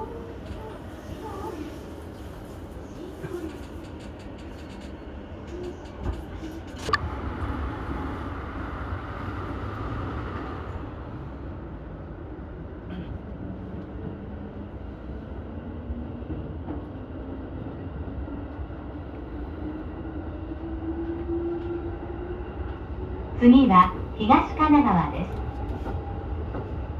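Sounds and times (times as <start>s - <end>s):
electric train low rumble: 0.0s - 26.9s.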